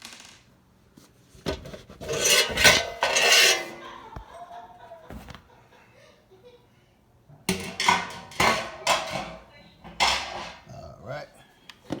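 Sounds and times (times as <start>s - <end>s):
dishwasher parts scraping: 1.3s - 4.5s, 7.5s - 10.7s
knocks on dishwasher parts: 7.5s - 10.6s.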